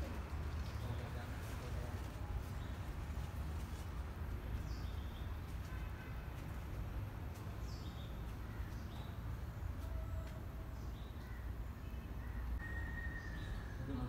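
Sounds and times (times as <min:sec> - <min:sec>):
birds calling: 0:07.2 - 0:14.0.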